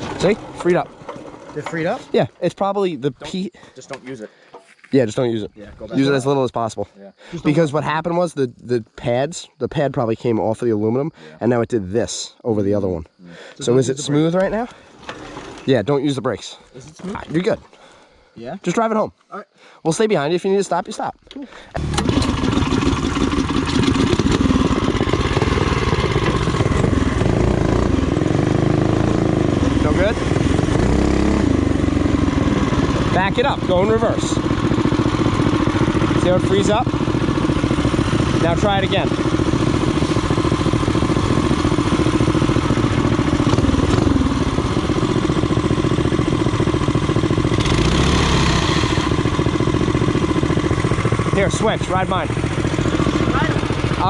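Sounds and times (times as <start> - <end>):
mini bike engine running: 0.0 - 2.1, 14.9 - 15.7, 21.8 - 54.0.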